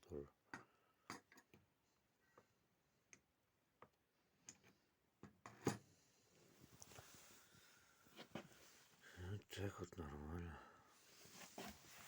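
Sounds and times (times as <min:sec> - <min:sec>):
small parts clicking and knocking: 0:00.5 - 0:01.6.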